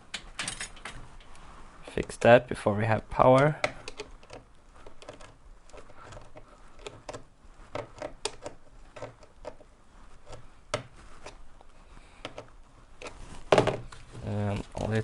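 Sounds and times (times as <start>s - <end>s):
hands handling battery and wires: 3.1s - 15.0s.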